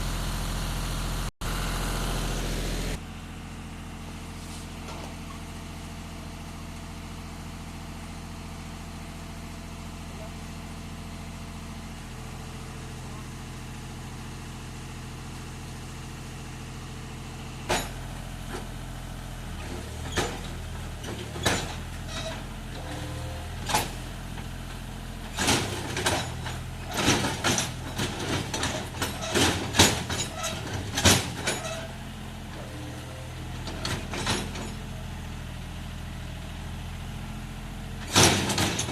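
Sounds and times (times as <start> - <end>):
tractor diesel engine idling: 0.0 - 38.9
sharp knocks and clanks: 17.7 - 18.7, 25.4 - 31.9, 38.1 - 38.9.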